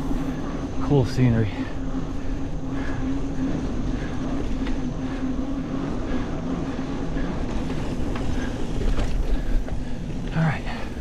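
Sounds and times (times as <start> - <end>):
bike tyres on dirt trail: 0.0 - 11.0.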